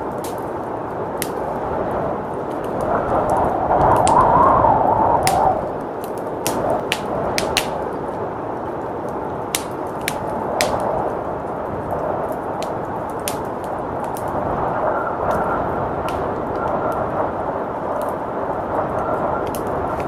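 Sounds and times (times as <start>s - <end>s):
fireplace crackling: 0.0s - 20.0s
howling blizzard wind: 0.0s - 20.0s
sharp wood pops: 6.4s - 7.8s, 9.5s - 10.8s.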